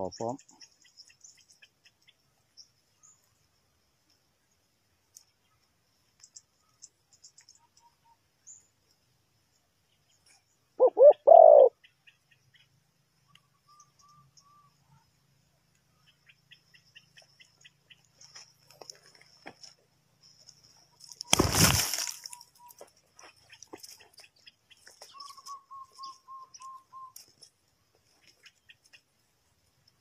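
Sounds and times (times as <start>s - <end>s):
small birds chirping: 0.0s - 30.0s
dove cooing: 10.8s - 11.8s.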